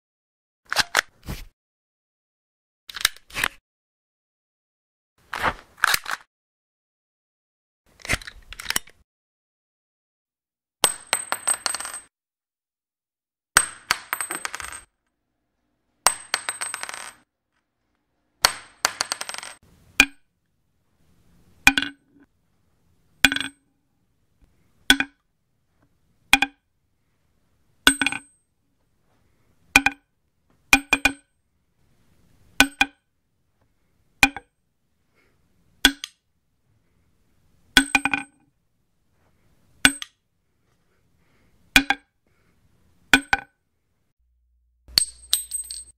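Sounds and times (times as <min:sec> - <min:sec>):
cartridge cases clinking on tile: 0:13.8 - 0:14.9, 0:44.9 - 0:45.9.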